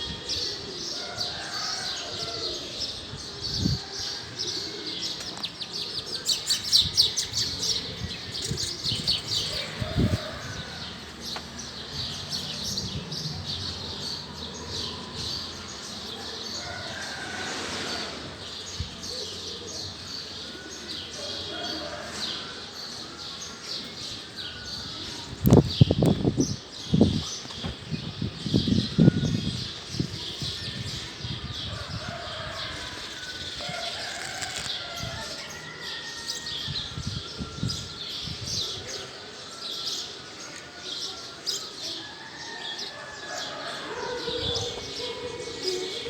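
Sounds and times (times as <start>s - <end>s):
small birds chirping: 5.1s - 14.8s.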